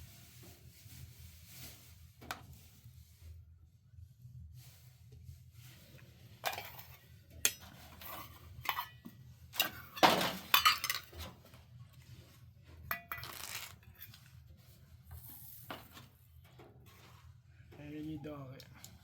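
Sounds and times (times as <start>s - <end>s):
dishes and utensils clinking: 6.4s - 11.4s, 12.8s - 14.3s.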